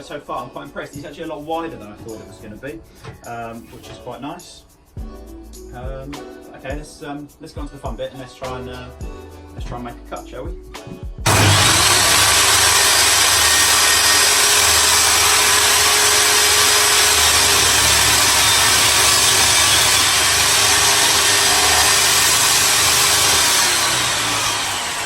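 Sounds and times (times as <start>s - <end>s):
saw blade spinning down: 11.3s - 25.0s
table saw cutting wood: 11.3s - 25.0s.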